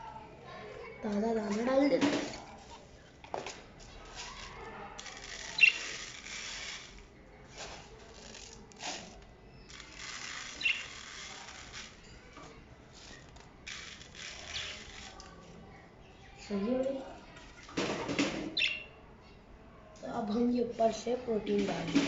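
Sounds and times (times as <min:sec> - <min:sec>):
birdseed rattling into dishes: 0:04.1 - 0:07.0, 0:09.7 - 0:12.0, 0:13.0 - 0:15.2.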